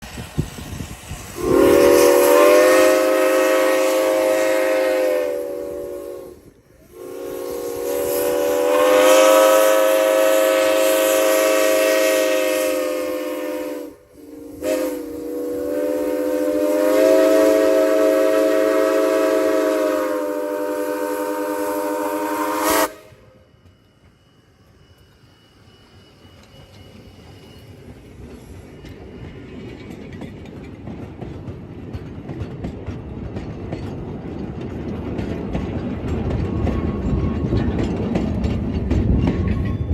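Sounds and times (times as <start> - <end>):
steam whistle blasts: 1.2 - 23.7.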